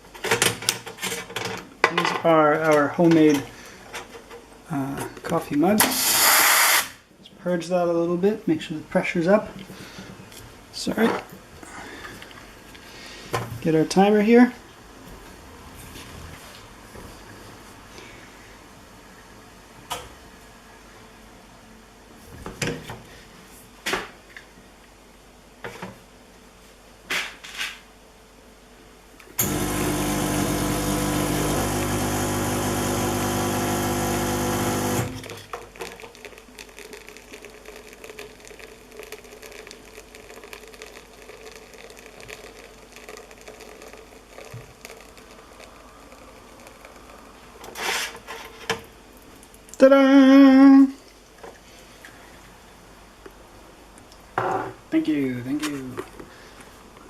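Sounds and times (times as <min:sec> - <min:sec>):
espresso machine electric hum: 0:29.4 - 0:35.3
coffee trickling into cup: 0:29.4 - 0:48.5.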